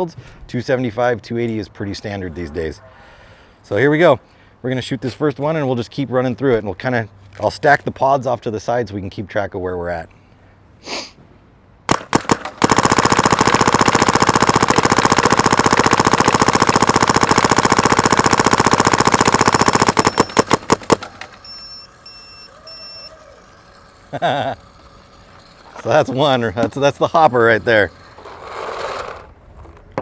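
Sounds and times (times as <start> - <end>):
paintball gun firing: 11.9 - 21.6.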